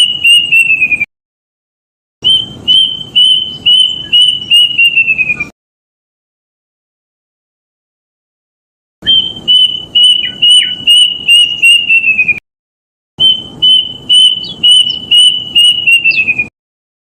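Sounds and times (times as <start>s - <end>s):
cuckoo whistled song: 0.0s - 1.1s, 2.2s - 5.5s, 9.0s - 12.4s, 13.2s - 16.5s.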